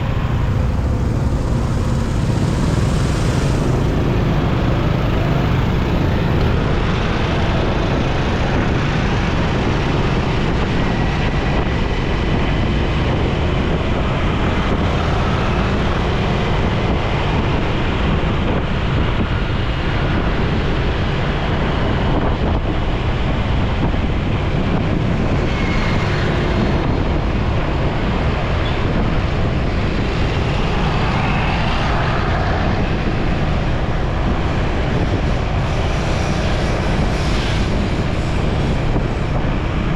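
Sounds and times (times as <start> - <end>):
motorcycle engine and tyres: 0.0 - 8.2
wind rushing on microphone: 0.0 - 39.9.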